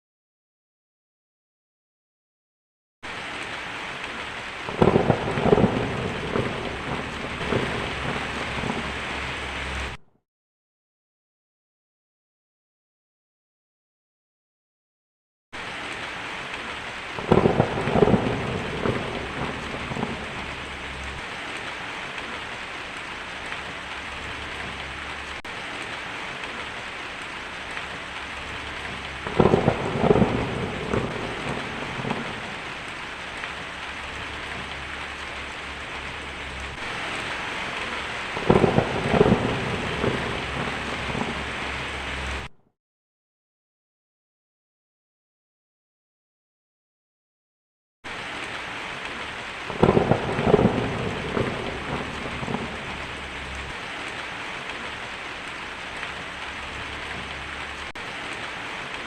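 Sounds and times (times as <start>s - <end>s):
heavy rain: 3.0s - 10.0s, 15.6s - 42.5s, 48.1s - 59.0s
thunder crack and rumble: 4.7s - 10.0s, 16.5s - 26.8s, 27.4s - 42.5s, 49.7s - 55.0s.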